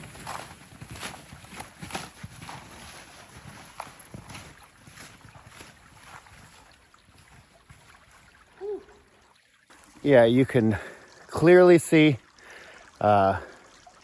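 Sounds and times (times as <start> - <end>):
footsteps crunching in snow: 0.0 - 8.4.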